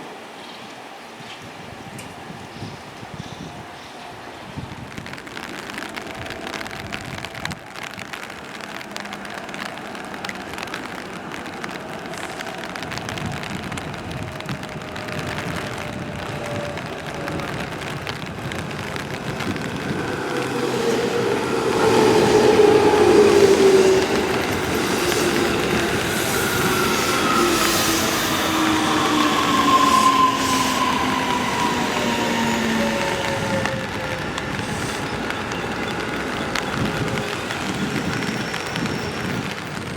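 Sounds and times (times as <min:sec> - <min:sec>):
electric train braking: 0:15.4 - 0:39.9.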